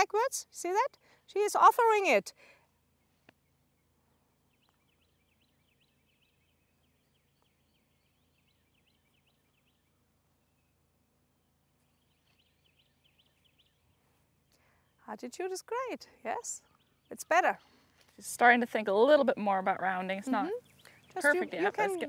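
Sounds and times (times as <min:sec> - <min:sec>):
low steady hum: 0:00.0 - 0:22.0
faint rapid bird chirping: 0:00.4 - 0:22.0.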